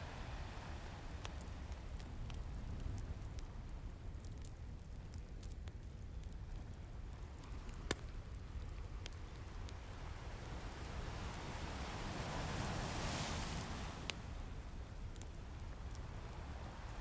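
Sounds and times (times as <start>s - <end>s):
wood fire crackling and popping: 1.2s - 9.9s
ocean surf rumble: 10.2s - 14.8s.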